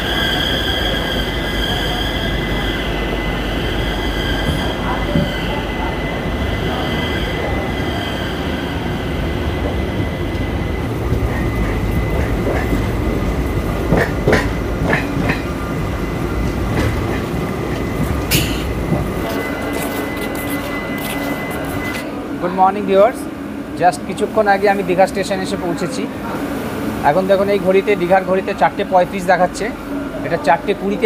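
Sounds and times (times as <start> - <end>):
train wheels rumbling on rails: 0.0 - 31.0
wheels clacking over rail joints: 13.9 - 15.6.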